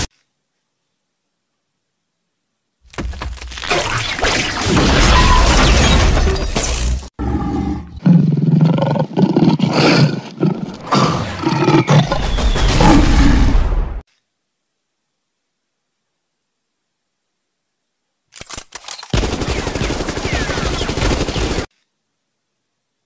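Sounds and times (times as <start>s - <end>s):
animal roars and growls: 7.2s - 14.0s.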